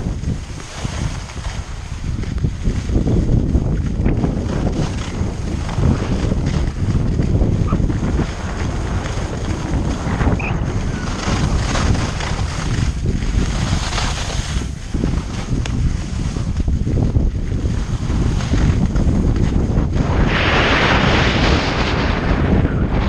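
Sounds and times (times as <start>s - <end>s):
skis scraping across snow: 0.0s - 23.0s
wind buffeting microphone: 0.0s - 23.0s.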